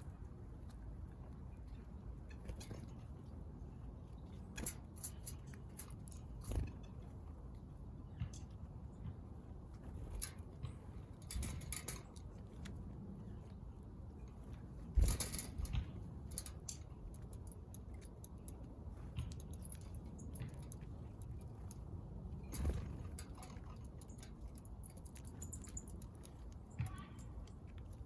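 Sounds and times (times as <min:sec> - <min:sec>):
birds pecking seed: 0:00.0 - 0:28.0
bird wing flutters: 0:22.4 - 0:23.4.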